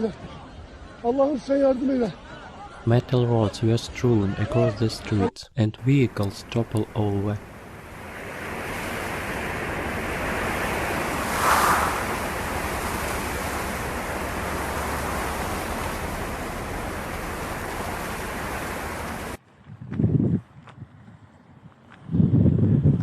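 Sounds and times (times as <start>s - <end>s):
steady rushing noise: 5.8s - 19.4s.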